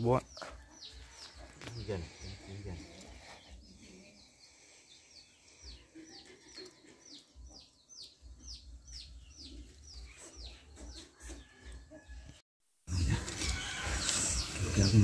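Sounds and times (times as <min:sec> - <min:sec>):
bird peeping: 0:00.2 - 0:11.5.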